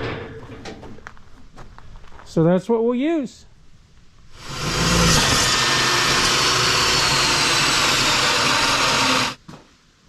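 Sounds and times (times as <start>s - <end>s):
power tool cutting steel: 4.4s - 9.4s.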